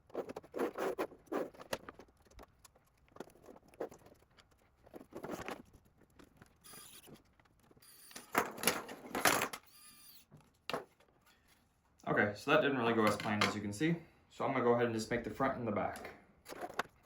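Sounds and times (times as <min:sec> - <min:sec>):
hard plastic parts clicking and scraping: 0:00.0 - 0:09.7, 0:13.0 - 0:13.6, 0:15.8 - 0:17.0.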